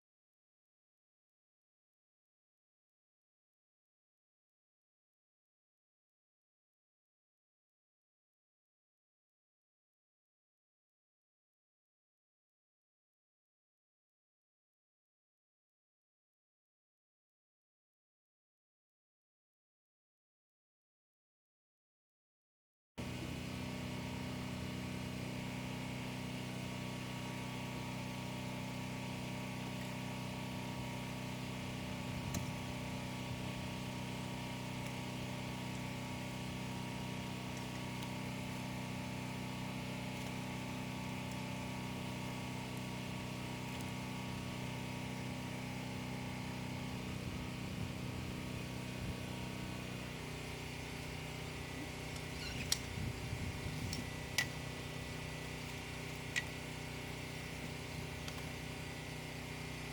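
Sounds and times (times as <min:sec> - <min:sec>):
steady mechanical hum: 0:23.0 - 0:59.9.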